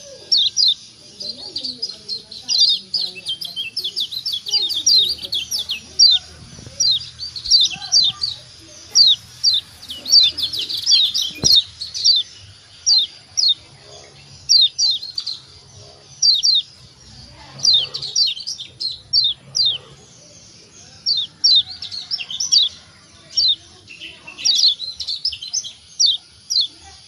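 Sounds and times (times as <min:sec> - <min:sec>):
bird chirping calls: 0:00.0 - 0:27.0.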